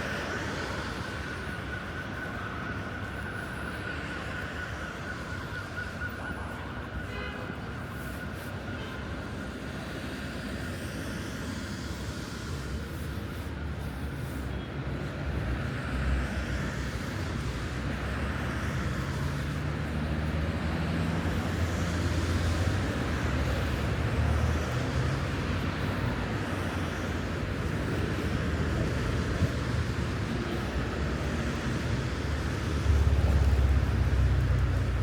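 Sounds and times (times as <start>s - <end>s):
passing vehicles rushing: 11.4s - 35.0s.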